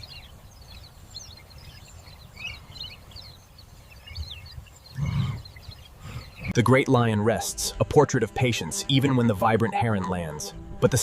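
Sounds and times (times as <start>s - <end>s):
small birds chirping: 0.0s - 7.8s.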